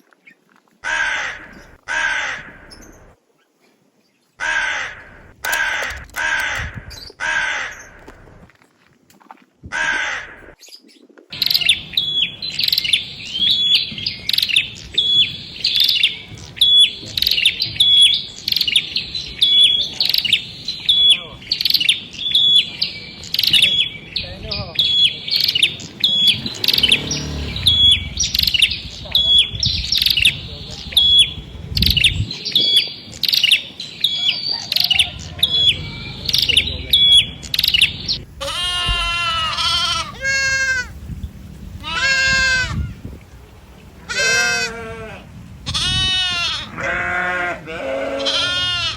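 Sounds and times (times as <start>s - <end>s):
bird chirping: 1.2s - 8.3s, 10.5s - 40.2s
loud wavering bleat: 38.4s - 41.0s, 41.8s - 43.0s, 44.0s - 48.9s.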